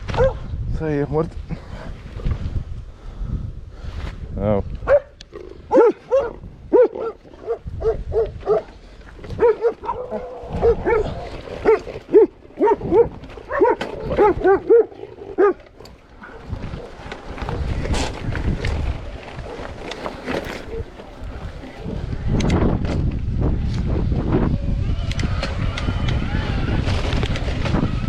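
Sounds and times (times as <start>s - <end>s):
dog barking rapidly: 0.2s - 0.4s, 4.9s - 5.1s, 5.7s - 8.7s, 9.4s - 15.6s.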